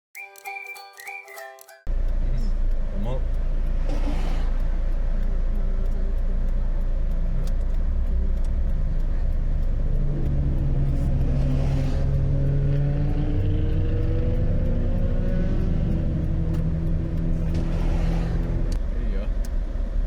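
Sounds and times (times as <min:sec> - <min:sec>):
car engine running: 0:01.9 - 0:20.0.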